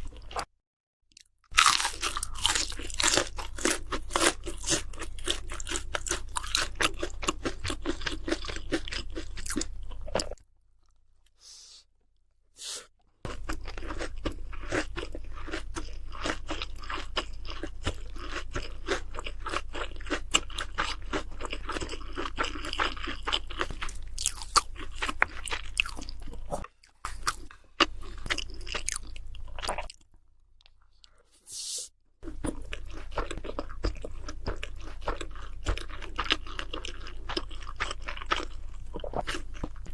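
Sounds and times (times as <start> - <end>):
crunching crispy fried food: 1.5 - 11.3, 13.3 - 26.5, 32.2 - 39.9.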